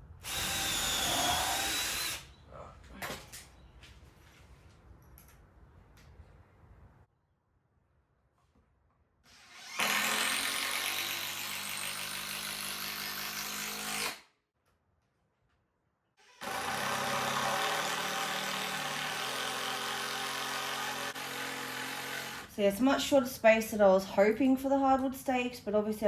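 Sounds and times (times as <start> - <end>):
power drill driving screws into wood: 0.2 - 2.3, 9.3 - 14.3, 16.2 - 22.5.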